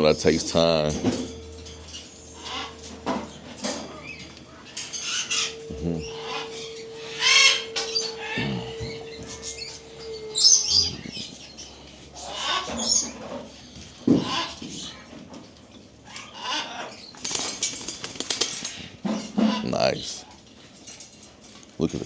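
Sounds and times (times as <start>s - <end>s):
caged birds chirping and squawking: 0.0s - 21.5s.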